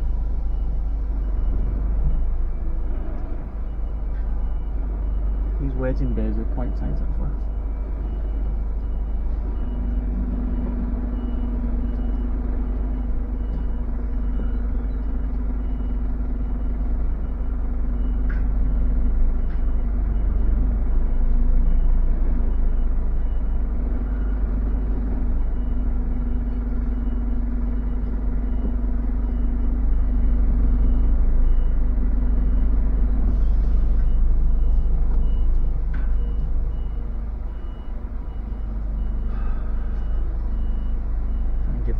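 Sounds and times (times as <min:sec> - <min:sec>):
diesel truck engine rumble: 0:00.0 - 0:41.9
reversing alarm beeping: 0:00.0 - 0:41.9.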